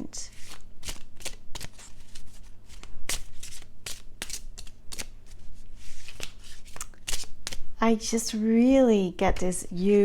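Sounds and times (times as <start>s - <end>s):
cards shuffling and snapping: 0.3s - 7.6s.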